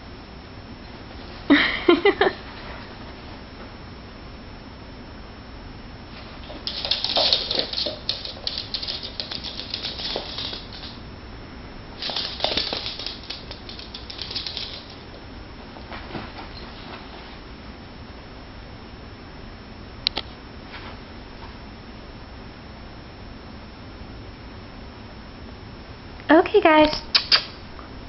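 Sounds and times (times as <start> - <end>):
paws and claws scratching: 6.2 - 11.0, 12.0 - 15.2.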